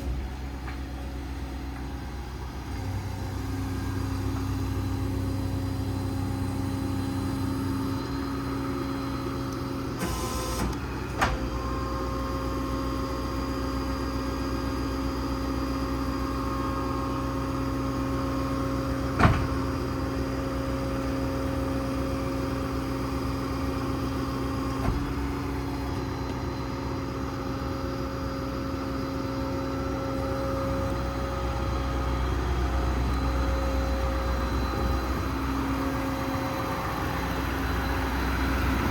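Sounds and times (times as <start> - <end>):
diesel engine running: 0.0 - 38.9
mechanical whine: 24.2 - 38.9.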